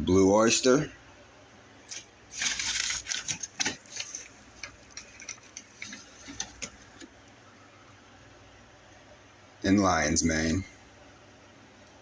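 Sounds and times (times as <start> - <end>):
rustling: 1.9 - 7.1.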